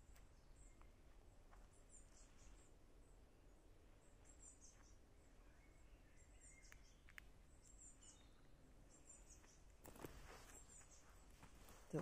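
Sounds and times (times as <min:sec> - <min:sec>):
bird chirps: 0:04.0 - 0:12.0
light clicks: 0:06.6 - 0:07.3.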